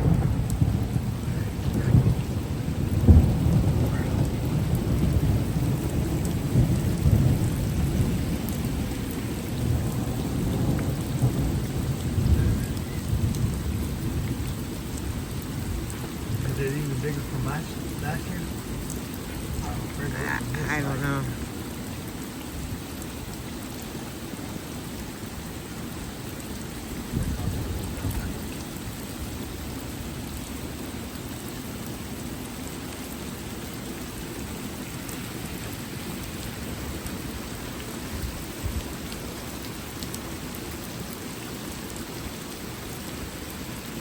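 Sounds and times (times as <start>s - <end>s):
thunder rumbling: 0.0s - 21.9s, 26.6s - 30.2s
rain falling steadily: 0.0s - 44.0s.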